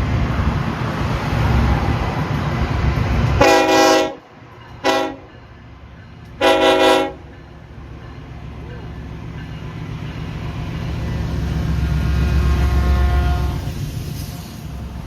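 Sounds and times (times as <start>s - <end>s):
locomotive horn chord: 3.4s - 4.2s, 4.8s - 5.3s, 6.4s - 7.2s, 12.3s - 13.7s.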